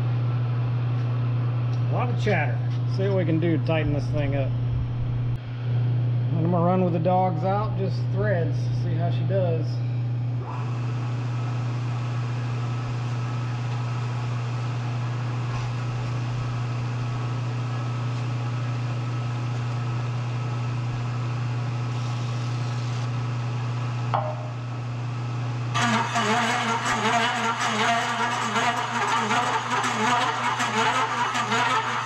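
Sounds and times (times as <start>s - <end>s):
milling machine motor hum: 10.0s - 32.0s.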